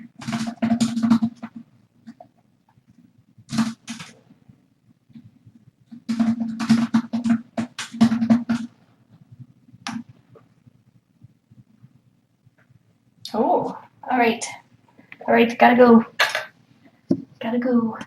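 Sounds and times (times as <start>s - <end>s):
sharp knocking and clattering: 0.0s - 2.3s, 3.5s - 4.2s, 5.9s - 8.7s.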